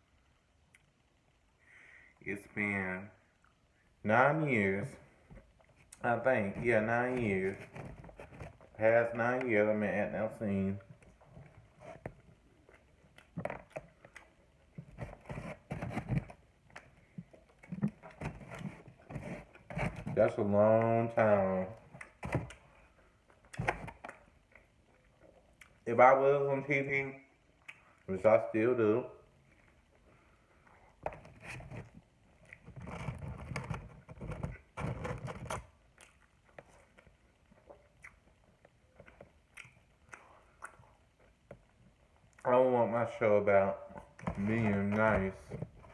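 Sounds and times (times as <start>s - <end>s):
chewing and mouth sounds: 10.9s - 15.1s, 21.8s - 25.9s, 27.5s - 28.1s, 35.8s - 42.5s
small scrapes and taps: 14.8s - 20.2s, 31.0s - 35.6s.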